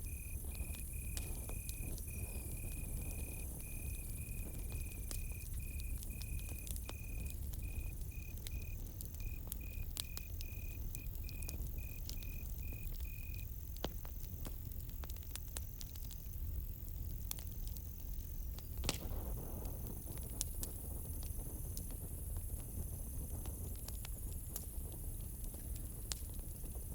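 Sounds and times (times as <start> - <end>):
high insect trill: 0.0 - 14.2
cricket chirping: 0.0 - 16.6
campfire crackling and popping: 0.0 - 26.9.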